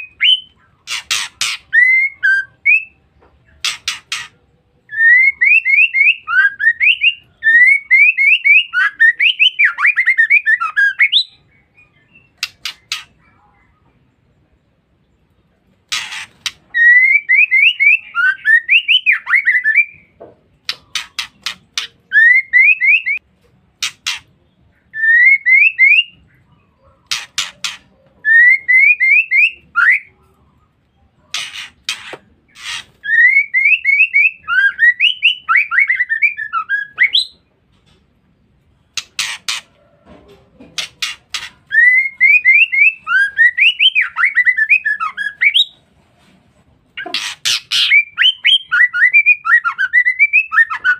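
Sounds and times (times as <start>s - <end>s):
bird harsh rasping notes: 0.0s - 13.6s, 15.7s - 30.2s, 31.2s - 37.5s, 38.8s - 39.8s, 40.8s - 45.8s, 46.9s - 50.9s.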